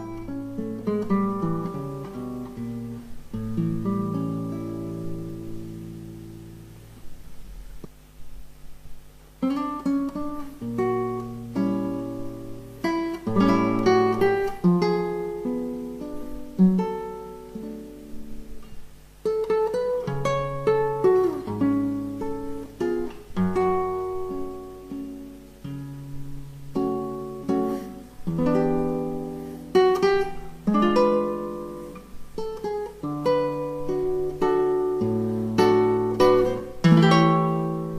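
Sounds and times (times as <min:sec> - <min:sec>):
acoustic guitar melody: 0:00.0 - 0:37.9.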